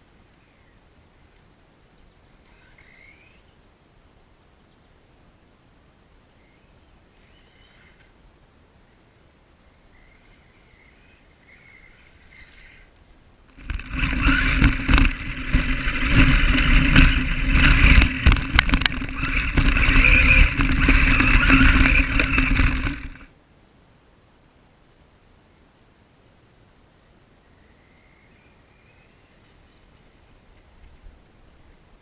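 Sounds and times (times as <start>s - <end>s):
rc truck motor whine: 2.4s - 3.6s, 6.4s - 8.1s, 9.9s - 23.3s
tyres rattling over rough ground: 13.5s - 23.3s.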